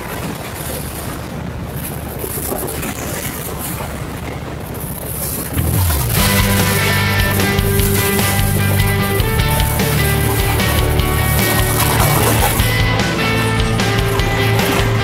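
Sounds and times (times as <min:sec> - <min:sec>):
motorcycle engine rumble: 0:05.3 - 0:15.0
music: 0:05.7 - 0:15.0.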